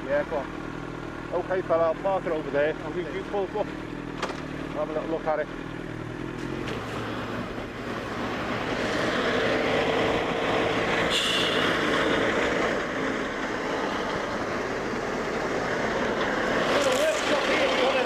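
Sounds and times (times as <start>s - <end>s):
vehicle passing close by: 6.2s - 18.0s
brief high squeal: 11.1s - 11.8s.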